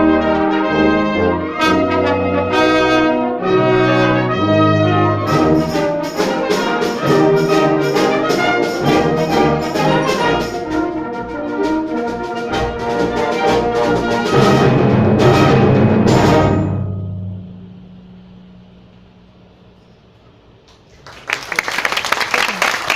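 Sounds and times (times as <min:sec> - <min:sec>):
concert band playing loudly: 0:00.0 - 0:16.9.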